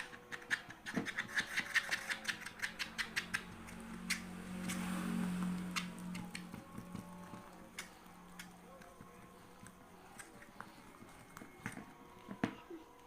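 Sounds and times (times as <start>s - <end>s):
low hum: 2.5s - 12.1s.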